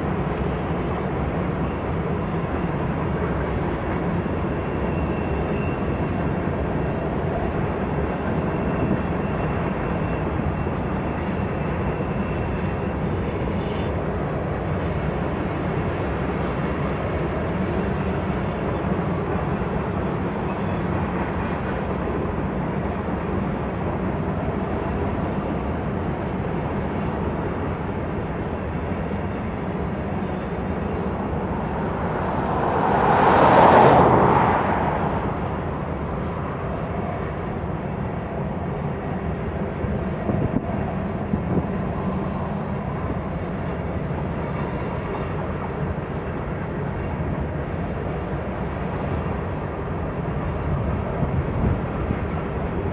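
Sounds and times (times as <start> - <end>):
train wheels rumbling on rail: 0.0 - 52.9
whoosh: 31.7 - 35.9.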